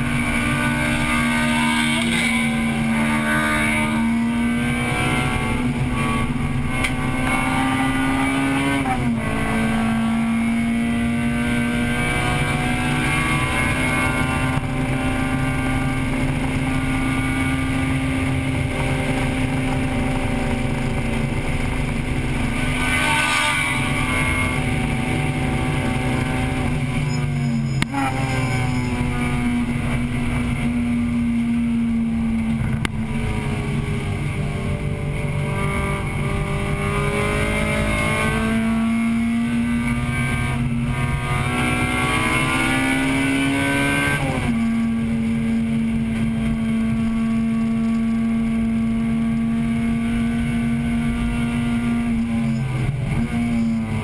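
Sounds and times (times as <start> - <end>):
car engine revving high: 0.0 - 54.0.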